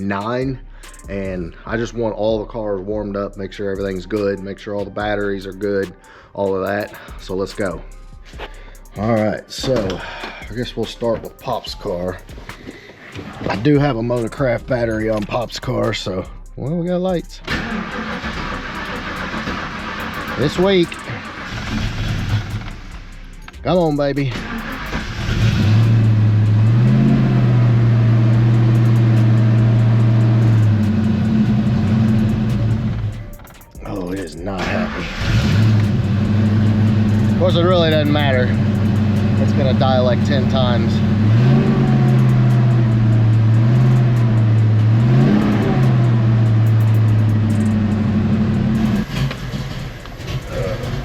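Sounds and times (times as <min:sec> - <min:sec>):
car engine starting and idling: 0:17.1 - 0:51.0.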